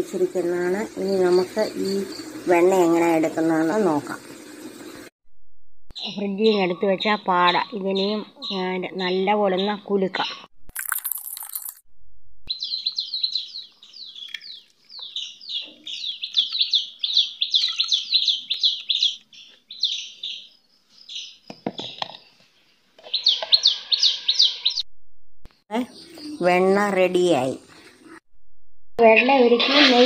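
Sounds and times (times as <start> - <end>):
small bird chirping: 12.5 - 24.8.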